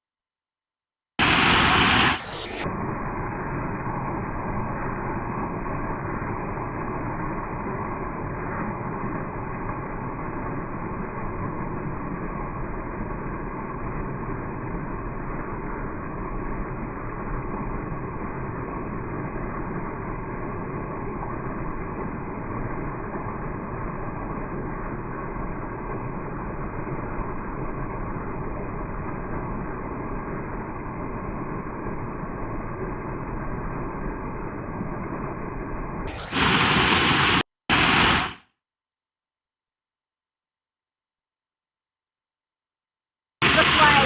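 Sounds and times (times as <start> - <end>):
muffled waterfall rush: 1.2 - 5.0, 36.1 - 38.4, 43.4 - 44.0.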